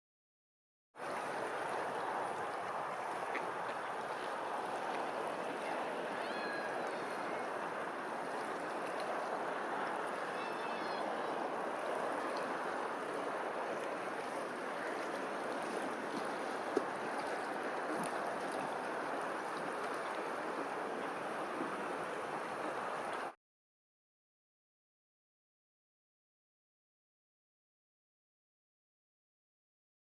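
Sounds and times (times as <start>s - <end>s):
flowing water rushing: 1.0s - 23.4s.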